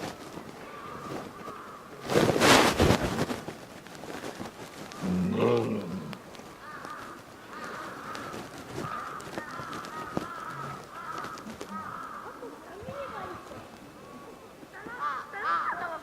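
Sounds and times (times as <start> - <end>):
crows cawing: 0.6 - 2.2, 4.1 - 16.0.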